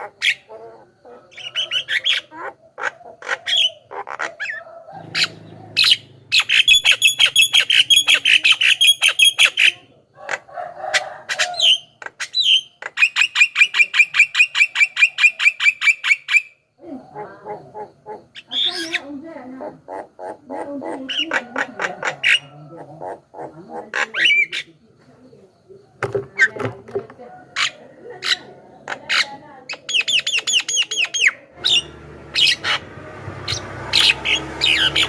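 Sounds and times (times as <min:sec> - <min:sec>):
bird fast chattering: 0:01.3 - 0:09.8, 0:18.2 - 0:24.8, 0:27.6 - 0:35.0
bird harsh squawks: 0:01.3 - 0:09.8, 0:27.6 - 0:32.9, 0:33.5 - 0:35.0.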